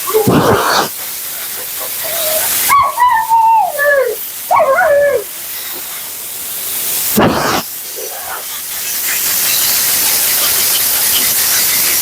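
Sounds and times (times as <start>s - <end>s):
pet dryer hissing: 0.0s - 12.0s
husky howling: 1.6s - 5.3s.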